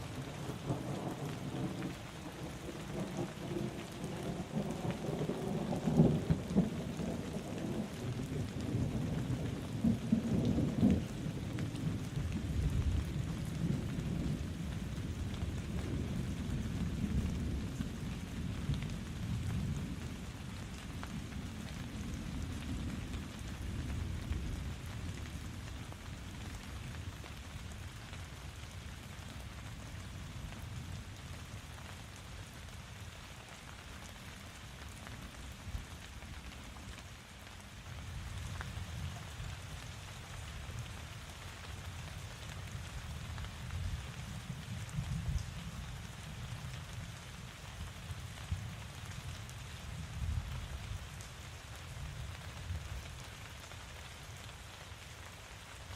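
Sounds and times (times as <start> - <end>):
steady rain falling: 0.0 - 55.9
thunder rumbling: 0.1 - 20.3.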